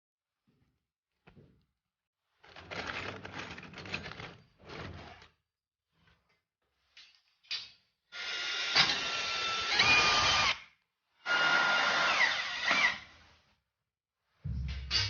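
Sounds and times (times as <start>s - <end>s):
power tool cutting wood: 8.2s - 10.6s, 11.2s - 13.1s.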